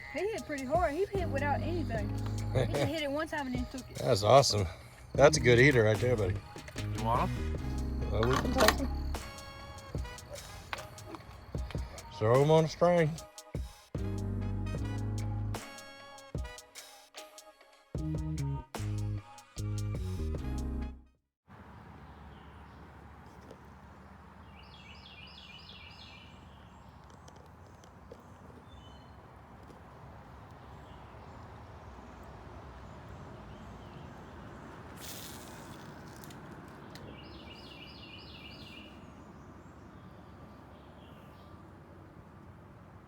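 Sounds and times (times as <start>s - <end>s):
outdoor background noise: 0.0s - 17.5s, 21.4s - 43.0s
brief hiss: 34.9s - 36.3s.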